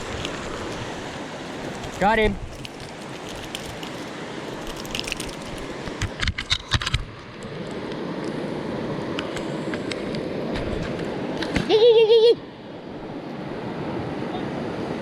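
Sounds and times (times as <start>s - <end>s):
creek water rushing: 0.0s - 6.2s, 7.2s - 15.0s.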